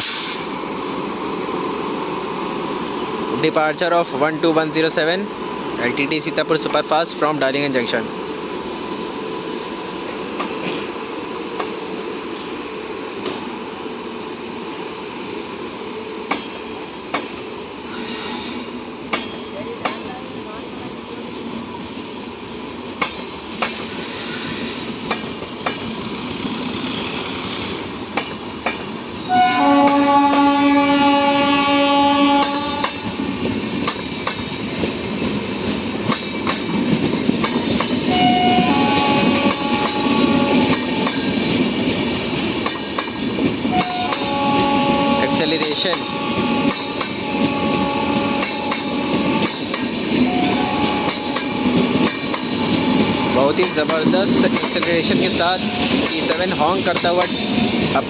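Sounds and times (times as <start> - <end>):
train wheels clicking over rail joints: 8.9 - 12.5, 13.2 - 13.7, 16.2 - 20.2, 22.8 - 30.6, 32.4 - 58.0
multi-tone train horn: 29.3 - 33.1, 38.1 - 41.1, 43.6 - 53.7, 55.6 - 56.1.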